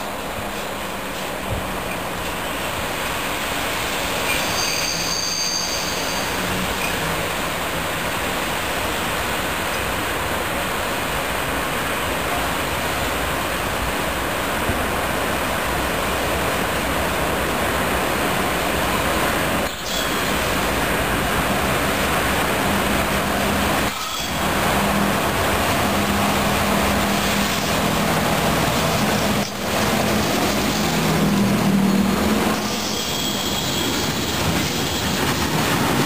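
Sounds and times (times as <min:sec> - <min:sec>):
train wheels rumbling on rail: 0:00.0 - 0:36.0
high-pitched wheel squeal: 0:04.3 - 0:06.6, 0:31.8 - 0:34.4.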